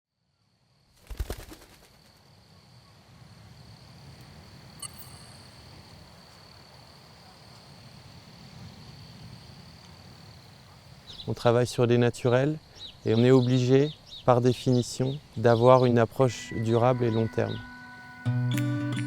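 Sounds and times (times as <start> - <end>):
short high chirp: 4.8 - 5.7
thin high-pitched drone: 4.8 - 5.7, 16.3 - 19.0.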